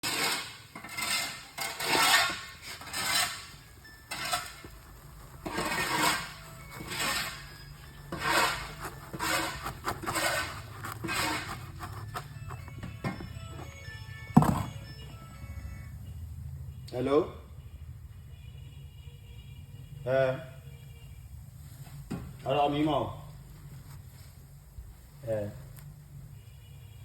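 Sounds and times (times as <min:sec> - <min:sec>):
scraping and rustling strokes: 0:00.0 - 0:14.9.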